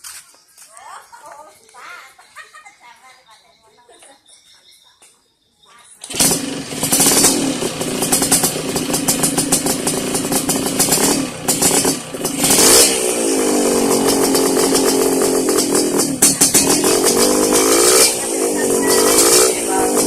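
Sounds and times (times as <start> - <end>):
two-stroke engine revving: 6.0 - 20.0.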